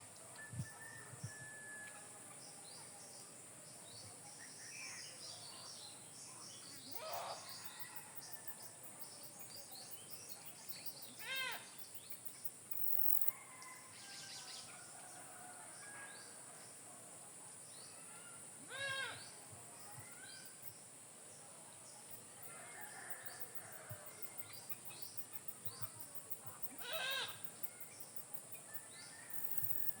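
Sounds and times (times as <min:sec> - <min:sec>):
fowl-like call: 0:26.8 - 0:27.4.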